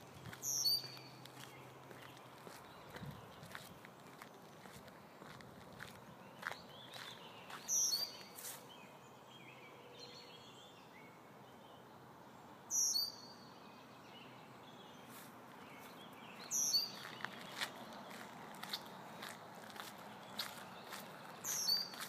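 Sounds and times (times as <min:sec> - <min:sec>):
songbird singing high song: 0:00.0 - 0:03.6, 0:06.1 - 0:18.8, 0:20.0 - 0:22.0
faint bird chirps: 0:06.3 - 0:11.8, 0:12.7 - 0:15.2, 0:20.3 - 0:22.0.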